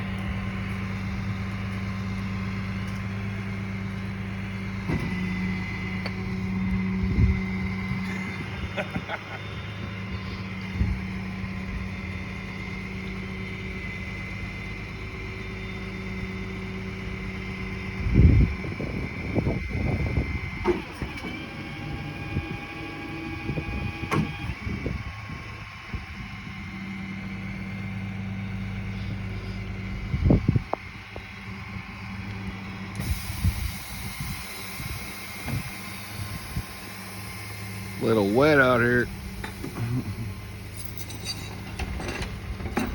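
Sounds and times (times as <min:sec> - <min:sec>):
vehicle engine idling: 0:00.0 - 0:42.9
tow chain clanking: 0:39.4 - 0:42.9.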